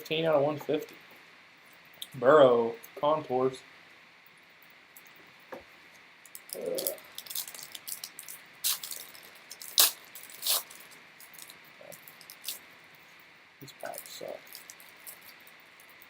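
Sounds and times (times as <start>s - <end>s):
foil wrapper crinkling: 6.3s - 12.6s, 13.8s - 16.0s.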